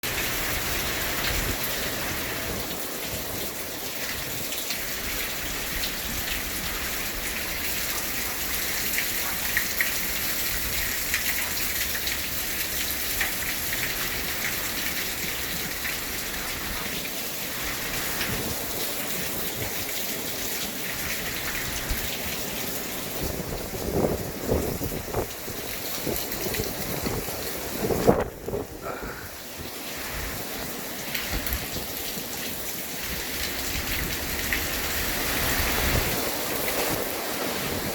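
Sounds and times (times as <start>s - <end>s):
heavy rain hissing: 0.0s - 37.9s
raindrops clicking on surface: 4.0s - 17.0s, 24.0s - 29.2s, 31.1s - 35.9s.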